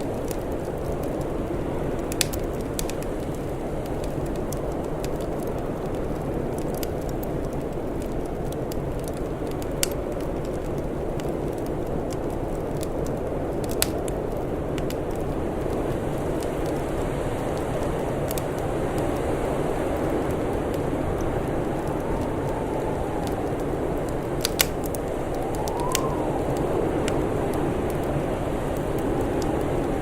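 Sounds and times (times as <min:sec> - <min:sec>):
sharp pops of fire: 0:00.0 - 0:16.8, 0:20.0 - 0:28.1
wood fire crackling: 0:00.0 - 0:30.0
low rumbling hiss: 0:14.2 - 0:30.0.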